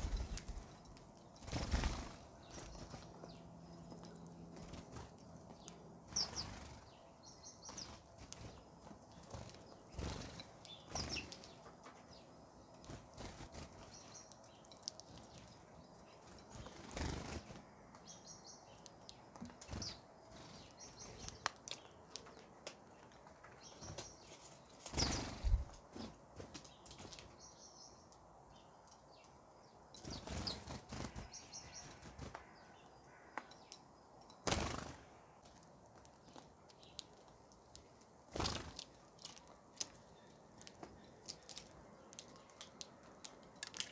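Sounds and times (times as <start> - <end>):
small birds chirping: 0.0 - 43.9
wing flapping: 1.4 - 3.2, 24.9 - 25.8, 34.5 - 35.1, 38.3 - 39.0.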